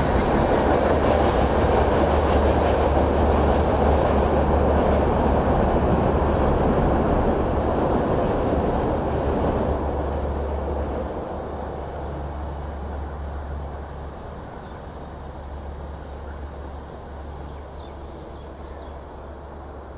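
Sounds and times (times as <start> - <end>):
train rumbling across bridge: 0.0 - 19.9.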